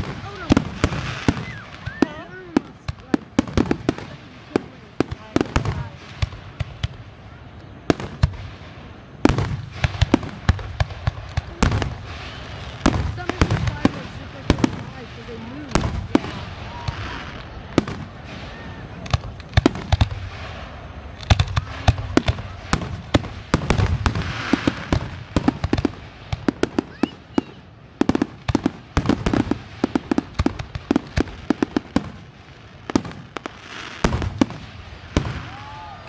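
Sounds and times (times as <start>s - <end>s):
firework bangs and crackles: 0.0s - 36.0s
steady hiss: 0.0s - 36.0s
faint whistles: 1.3s - 2.2s.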